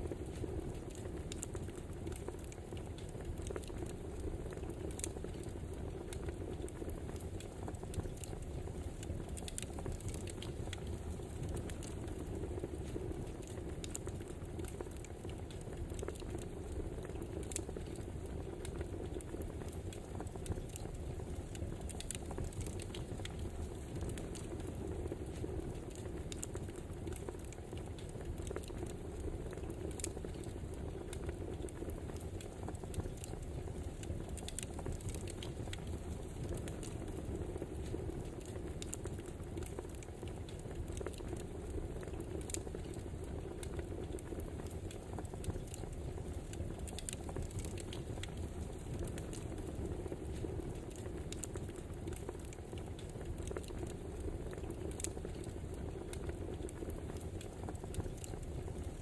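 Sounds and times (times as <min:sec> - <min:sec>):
fire low rustle: 0:00.0 - 0:59.0
wood fire crackling and popping: 0:00.0 - 0:59.0.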